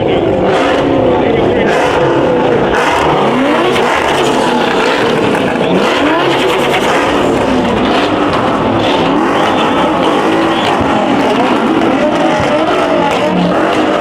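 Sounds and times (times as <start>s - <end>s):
muscle car engine revving: 0.0s - 14.0s.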